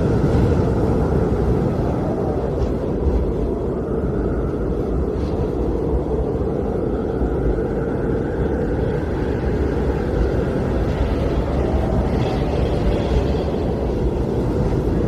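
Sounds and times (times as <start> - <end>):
blizzard wind rushing: 0.0 - 15.0.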